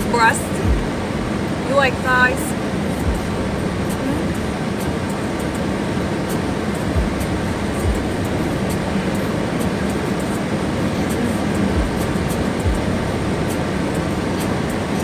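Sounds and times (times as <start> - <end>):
air conditioning: 0.0 - 15.0
car engine hum: 0.0 - 15.0
soft low thumps: 0.6 - 1.4, 3.0 - 4.3, 7.0 - 8.7, 11.8 - 13.5.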